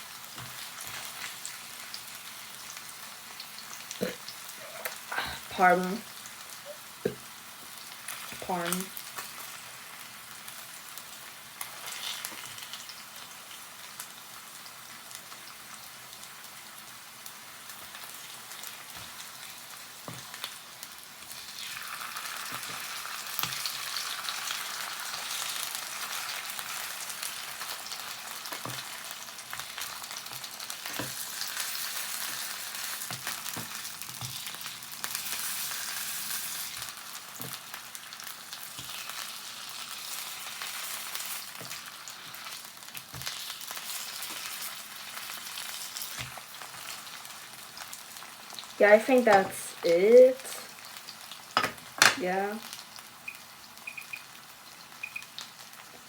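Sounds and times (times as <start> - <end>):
fish sizzling in a pan: 0.0 - 56.0.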